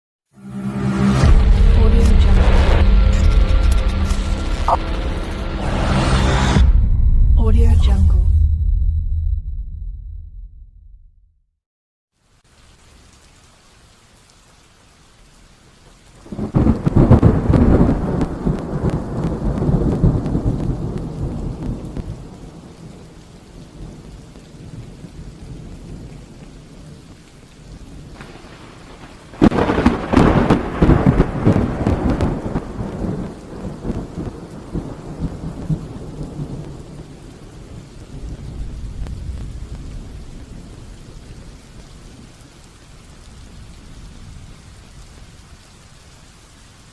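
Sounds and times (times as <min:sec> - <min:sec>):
steady rain: 0:00.3 - 0:06.6, 0:12.1 - 0:46.9
thunderclaps with rumbling: 0:01.2 - 0:03.4, 0:16.2 - 0:27.0, 0:27.8 - 0:42.4.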